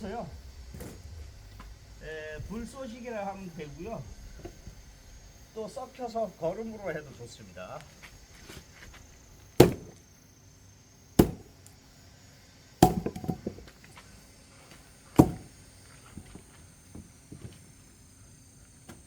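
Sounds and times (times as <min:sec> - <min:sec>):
axe strikes into wood: 0:09.6 - 0:10.0, 0:11.2 - 0:11.5, 0:12.8 - 0:13.6, 0:15.2 - 0:15.5
clatter of small knocks: 0:12.8 - 0:13.8.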